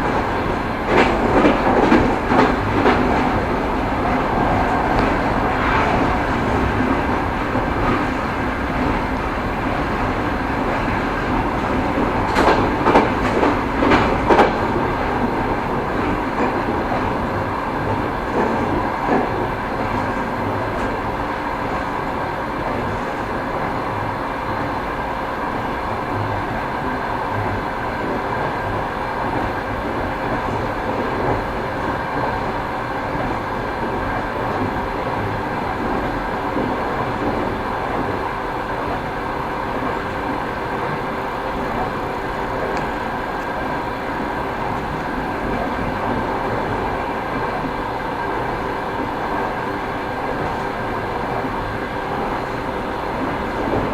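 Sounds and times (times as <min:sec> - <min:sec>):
wheels clacking on rail joints: 0:00.0 - 0:22.0
railway wheels rumbling over rails: 0:00.0 - 0:53.9.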